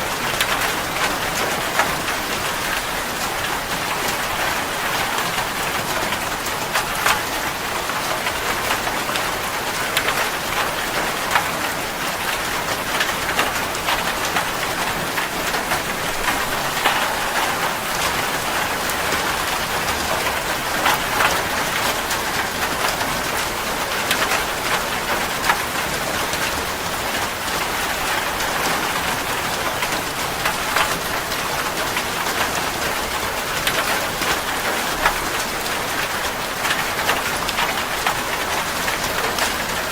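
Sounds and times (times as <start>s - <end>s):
raindrops ticking: 0.0s - 39.9s
rain hissing: 12.5s - 24.7s.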